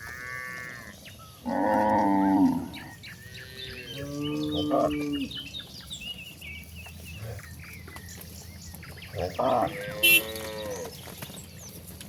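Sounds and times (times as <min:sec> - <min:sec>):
birds chirping: 0:00.0 - 0:12.0
cattle mooing: 0:01.5 - 0:05.3, 0:09.2 - 0:10.9.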